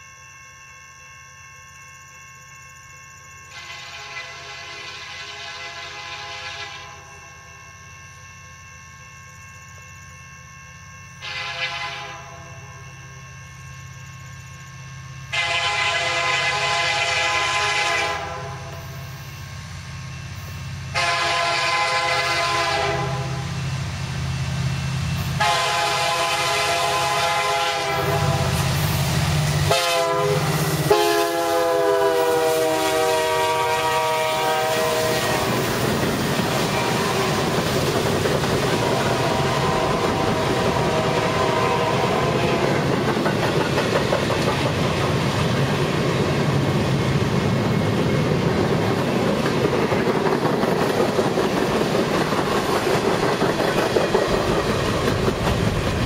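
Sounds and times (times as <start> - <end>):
locomotive air horn blasts: 3.5 - 7.0, 11.2 - 12.6, 15.3 - 19.0, 20.9 - 23.6, 25.4 - 28.8, 29.6 - 35.7, 36.5 - 37.6, 38.8 - 42.8
locomotive rumble: 19.3 - 56.0.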